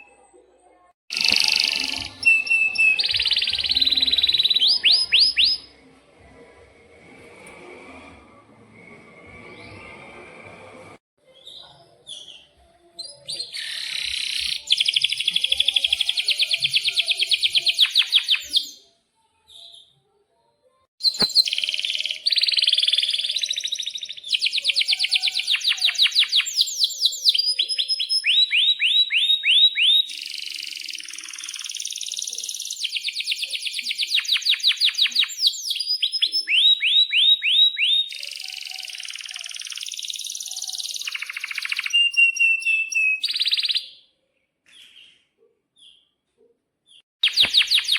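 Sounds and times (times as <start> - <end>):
canary singing: 1.1 - 5.8, 13.1 - 18.9, 21.0 - 44.1, 46.9 - 47.9.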